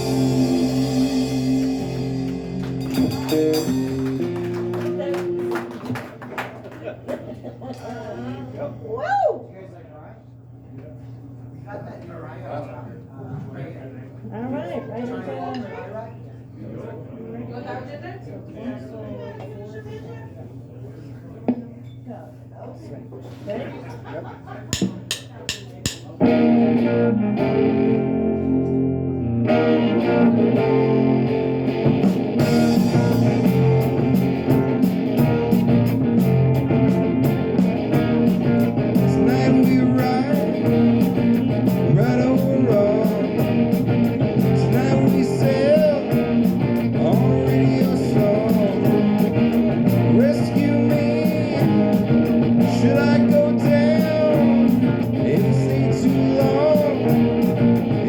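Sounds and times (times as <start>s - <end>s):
bass: 0.0s - 6.0s, 25.1s - 58.0s
electric guitar: 0.0s - 6.0s, 26.2s - 58.0s
drums keeping a steady beat: 0.0s - 7.3s, 24.1s - 26.4s, 30.4s - 58.0s.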